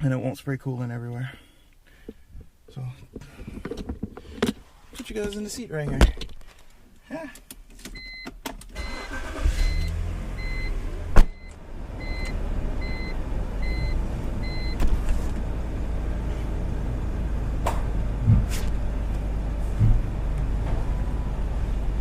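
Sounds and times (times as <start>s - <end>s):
car engine starting and idling: 7.7s - 22.0s
car warning chime dinging: 8.0s - 14.8s.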